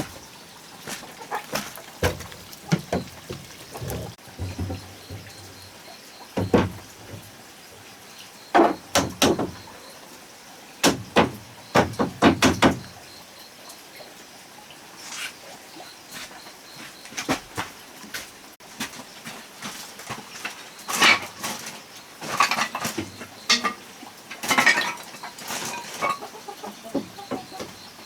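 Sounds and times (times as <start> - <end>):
knocks and thuds on wood: 1.5 - 5.3, 6.4 - 6.9, 8.6 - 9.6, 10.8 - 12.9.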